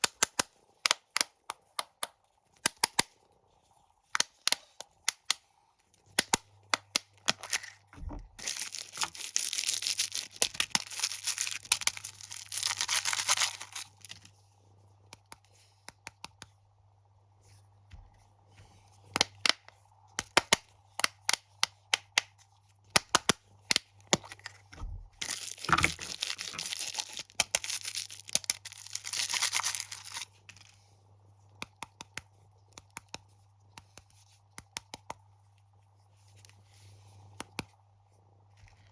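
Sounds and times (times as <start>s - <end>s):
plastic wrappers crinkling and tearing: 7.2s - 14.3s, 25.2s - 30.8s.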